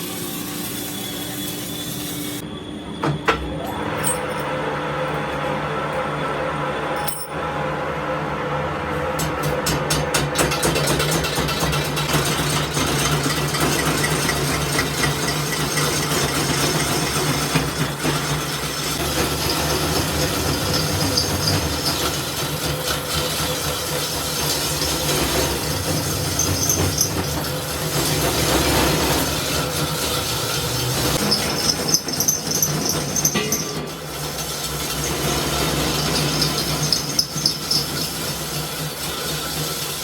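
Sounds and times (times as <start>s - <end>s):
machinery running: 10.5s - 40.0s.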